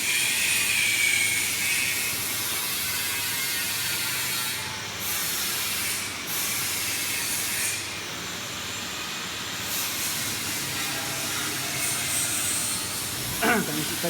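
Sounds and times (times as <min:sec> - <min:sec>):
machine running with steady hiss: 0:08.7 - 0:14.0.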